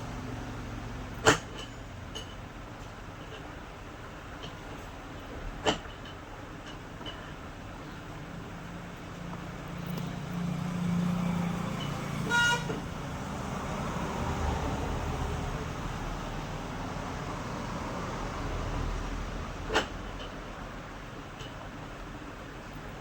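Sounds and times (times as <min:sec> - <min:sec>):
road traffic rumble: 0:00.0 - 0:23.0
vehicle horn toot: 0:12.2 - 0:12.9.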